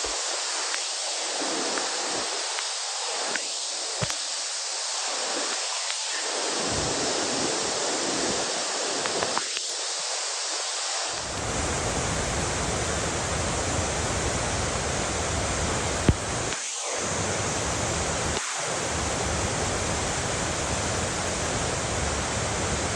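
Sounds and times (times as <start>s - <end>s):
waterfall roaring: 11.2s - 22.9s.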